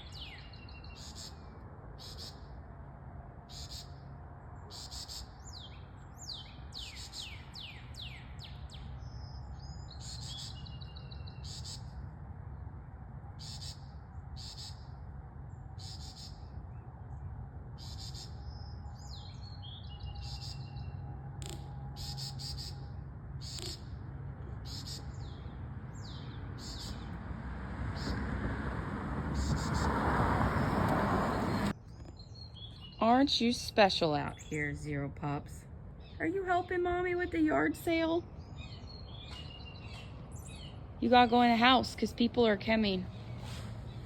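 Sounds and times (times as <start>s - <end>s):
bird warbling: 21.4s - 24.0s.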